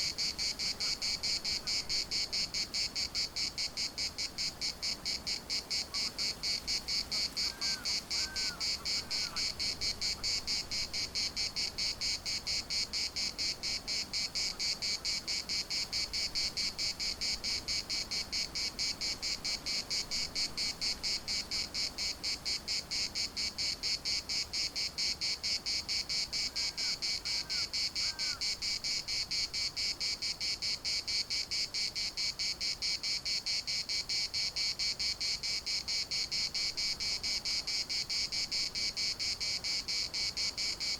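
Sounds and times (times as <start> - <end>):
cicadas buzzing: 0.0 - 40.9.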